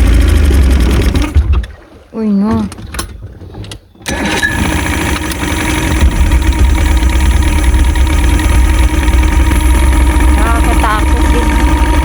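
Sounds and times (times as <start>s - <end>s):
boat motor rumbling: 0.0s - 12.0s.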